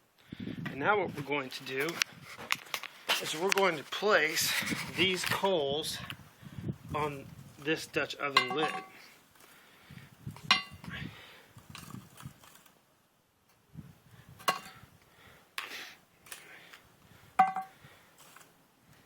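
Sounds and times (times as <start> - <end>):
soft scraping and handling: 0.7 - 6.2, 17.9 - 19.0.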